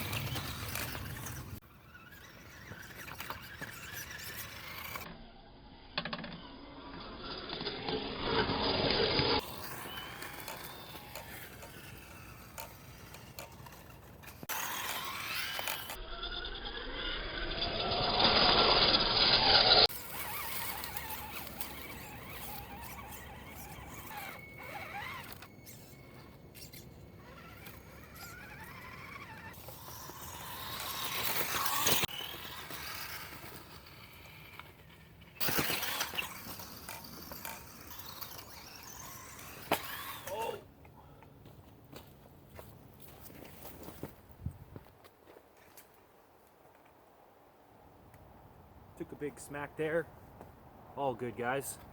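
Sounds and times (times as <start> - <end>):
electric motor whining: 0.0 - 40.6.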